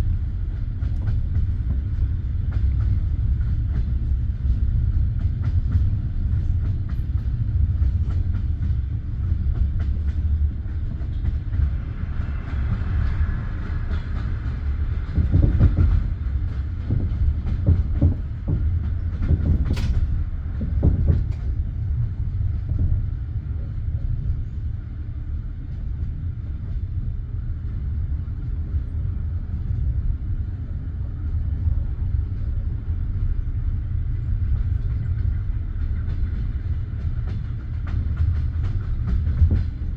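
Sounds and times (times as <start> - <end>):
wheels rumbling on rails: 0.0 - 39.9
clacks over rail joints: 0.1 - 23.2, 33.9 - 39.9.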